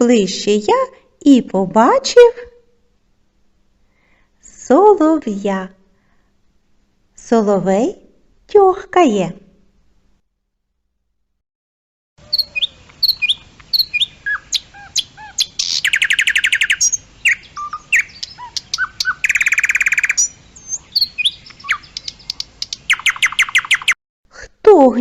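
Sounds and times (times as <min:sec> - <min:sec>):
nightingale singing: 0:12.2 - 0:24.0.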